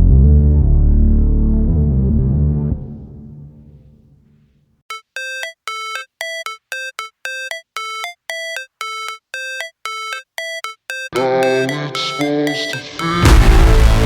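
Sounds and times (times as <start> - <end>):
electronic beeping tune: 4.9 - 14.0
music track: 4.9 - 14.0.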